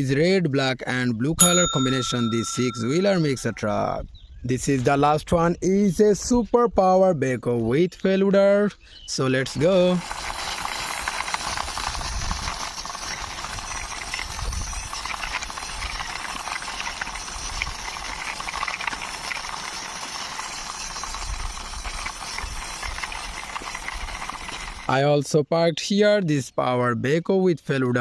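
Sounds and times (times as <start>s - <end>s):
toy wheels rolling: 9.8s - 24.9s.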